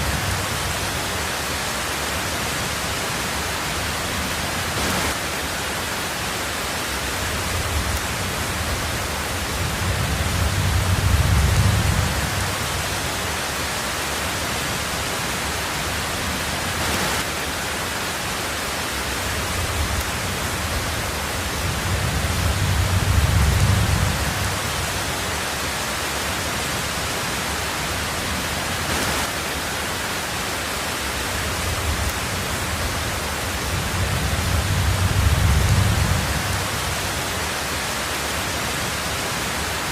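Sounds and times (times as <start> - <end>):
heavy rain on a tin roof: 0.0 - 39.9
low rumbles of thunder: 7.3 - 13.1, 19.4 - 25.2, 31.4 - 37.3.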